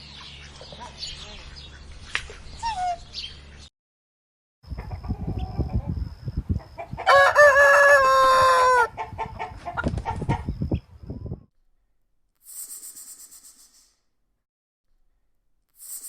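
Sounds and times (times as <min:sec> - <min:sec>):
chicken clucks: 0:04.7 - 0:07.8, 0:08.9 - 0:10.6
rooster crowing: 0:07.0 - 0:09.0.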